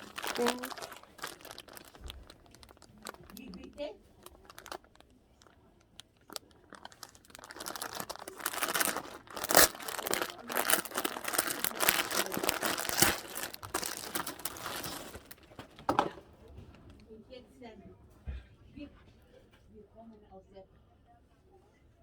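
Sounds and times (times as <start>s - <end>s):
crinkly material crackling: 0.0s - 17.0s.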